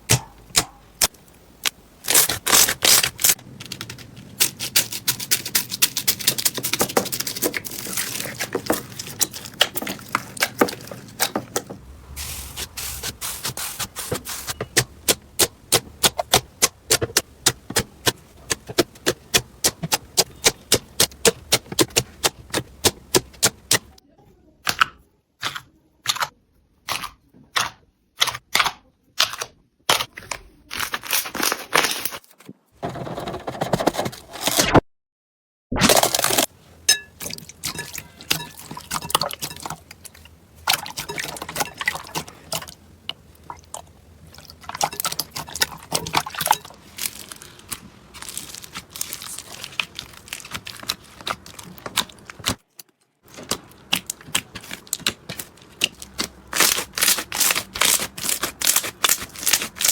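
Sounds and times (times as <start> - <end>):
crunchy slime crackling: 1.6 - 24.0, 35.8 - 36.5, 44.2 - 59.9.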